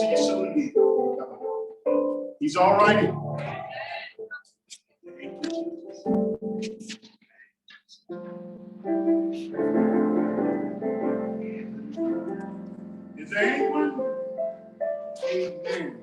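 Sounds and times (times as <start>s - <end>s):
person's voice: 0.0s - 0.8s, 2.4s - 4.4s, 13.2s - 14.1s, 15.2s - 16.0s
keyboard chords: 0.0s - 4.4s, 5.1s - 7.1s, 8.1s - 16.0s.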